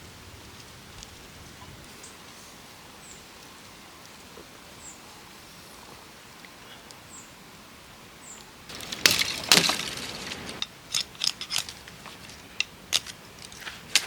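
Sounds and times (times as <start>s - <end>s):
burst of clattering: 8.7s - 10.6s.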